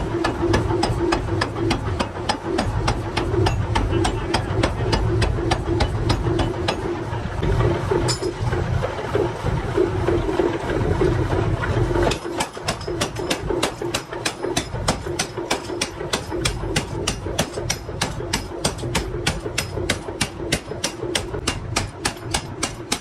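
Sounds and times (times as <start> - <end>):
power hammer striking metal: 0.0 - 7.0, 8.0 - 8.4, 12.0 - 23.0
machine rumble: 0.0 - 23.0.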